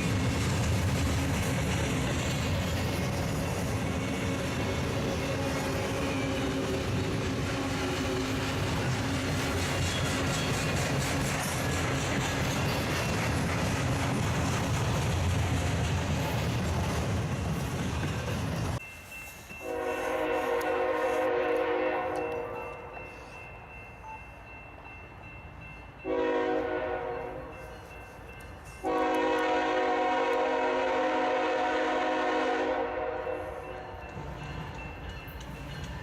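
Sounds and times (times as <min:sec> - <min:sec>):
freight train rumbling: 0:00.0 - 0:36.0
locomotive air horn blasts: 0:19.6 - 0:22.9, 0:26.0 - 0:27.5, 0:28.8 - 0:33.6.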